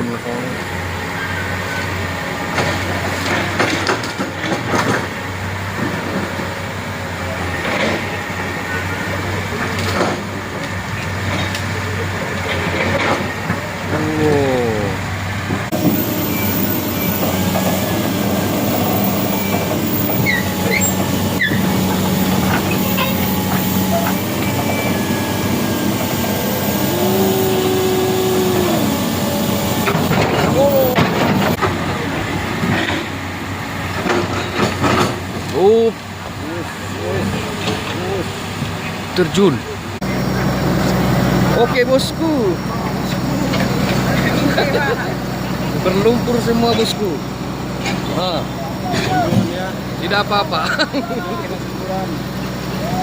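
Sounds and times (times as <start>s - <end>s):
heavy vehicle engines running: 0.0s - 53.0s
knocks and clatter: 2.5s - 5.1s.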